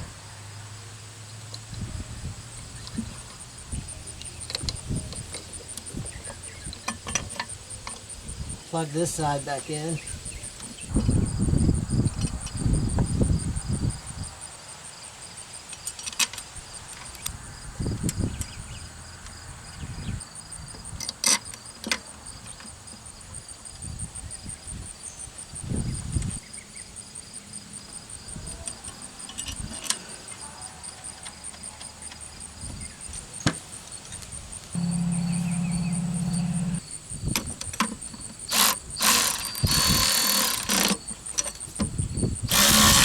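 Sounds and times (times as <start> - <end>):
insects trilling: 1.6 - 43.0
tools clunking and clicking on engine: 4.2 - 8.2, 34.8 - 43.0.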